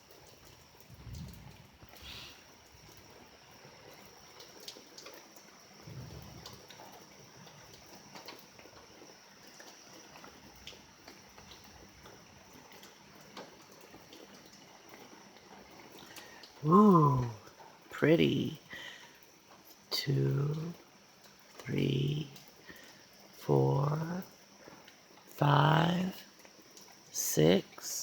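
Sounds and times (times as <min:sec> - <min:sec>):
rainwater dripping and trickling: 0:00.0 - 0:28.0.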